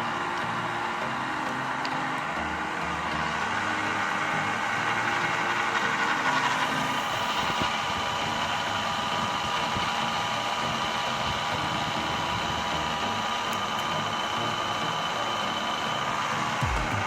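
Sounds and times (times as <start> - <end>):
machine running steadily: 0.0 - 17.0.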